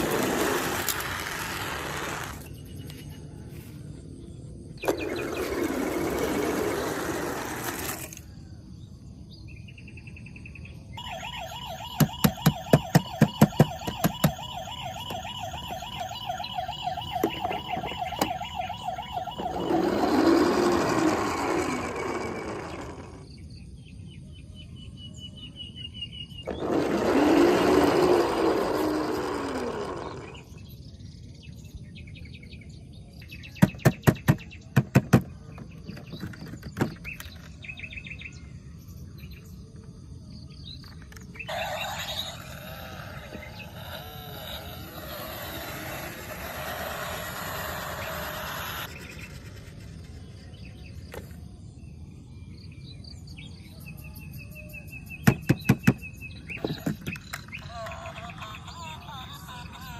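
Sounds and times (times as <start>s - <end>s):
toy siren wails: 11.0s - 23.2s, 26.5s - 30.5s, 41.5s - 49.3s, 57.6s - 59.9s.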